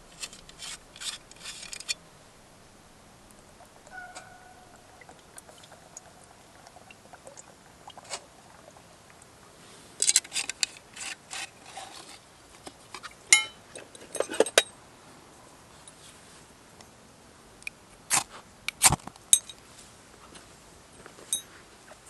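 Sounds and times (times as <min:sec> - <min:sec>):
metal on metal clink: 0:13.3 - 0:14.7, 0:19.3 - 0:19.6
metal cookware clattering: 0:13.4 - 0:14.6.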